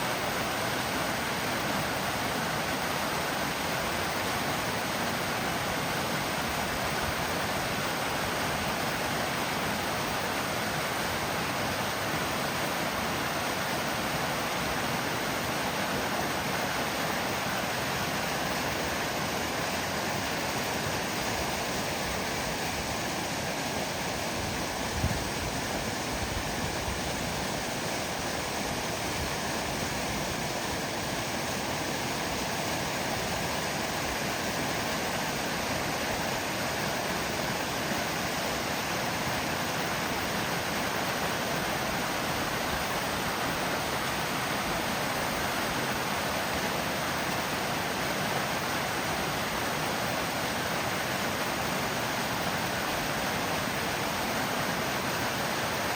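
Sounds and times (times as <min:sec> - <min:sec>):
water rushing over rocks: 0:00.0 - 0:55.9.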